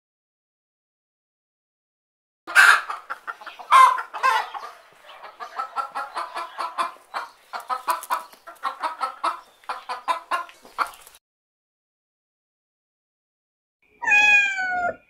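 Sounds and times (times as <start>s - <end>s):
chickens clucking: 2.5s - 11.2s.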